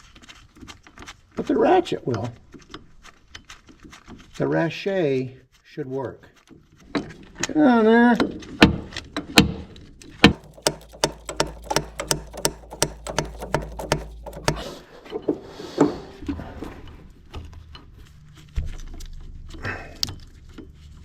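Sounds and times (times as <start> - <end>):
loud knock: 10.3 - 14.7
hand ratchet clicking: 10.3 - 14.8.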